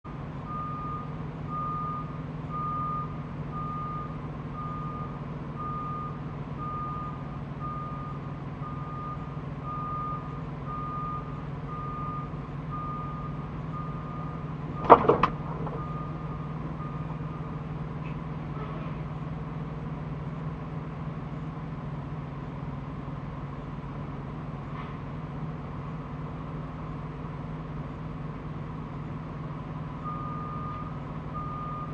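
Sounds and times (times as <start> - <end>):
truck engine hum: 0.0 - 31.9
truck reversing alarm beeps: 0.2 - 18.6, 27.8 - 31.9.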